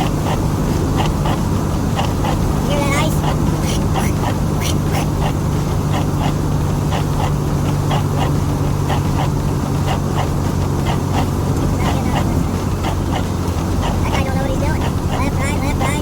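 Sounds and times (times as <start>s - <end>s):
truck engine droning: 0.0s - 16.0s
short sharp squeaks: 3.6s - 5.4s.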